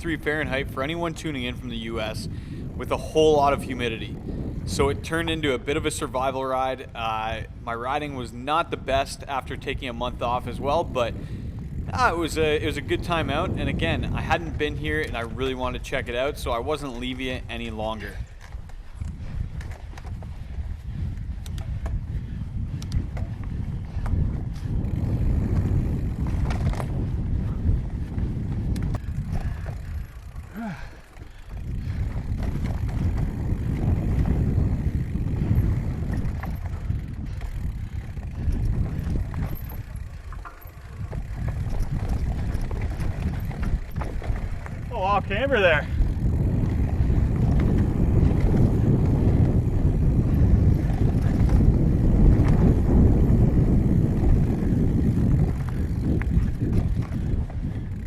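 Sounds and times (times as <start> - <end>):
bike clicks and rattles: 0.0 - 58.0
wind rumble on microphone: 0.0 - 58.0.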